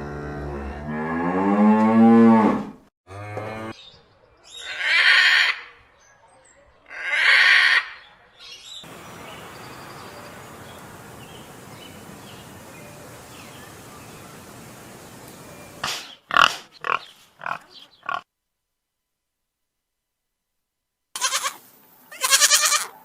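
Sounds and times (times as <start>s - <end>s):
steady background hiss: 8.8s - 15.8s, 21.2s - 23.0s.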